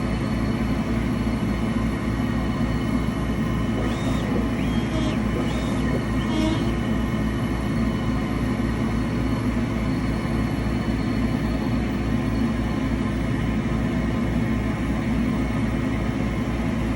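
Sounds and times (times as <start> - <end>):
engraver mechanical grinding: 3.5 - 7.2.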